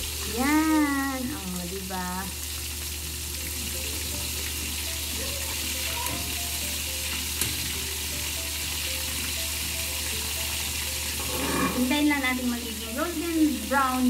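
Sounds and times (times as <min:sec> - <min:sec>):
chicken frying in hot oil: 0:00.0 - 0:14.0
metal tongs turning food: 0:08.6 - 0:12.4.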